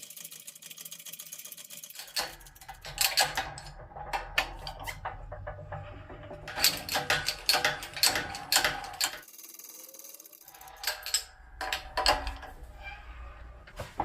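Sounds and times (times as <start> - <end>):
sharp clicks and knocks: 1.9 - 9.3.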